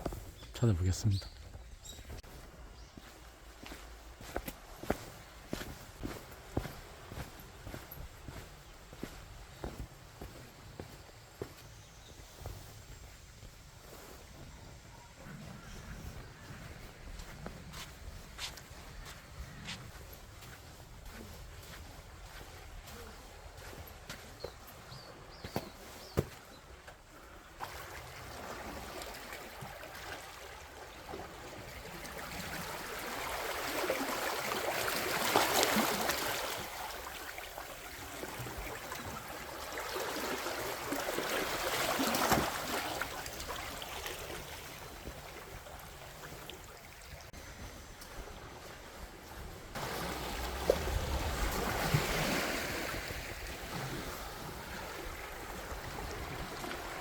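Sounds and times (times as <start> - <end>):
sea waves breaking on beach: 27.2 - 47.0, 48.3 - 57.0.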